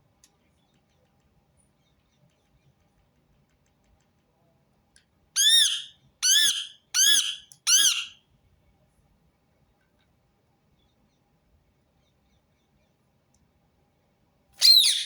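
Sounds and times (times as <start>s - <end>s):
parakeet squawking: 5.4s - 8.2s, 14.6s - 15.0s.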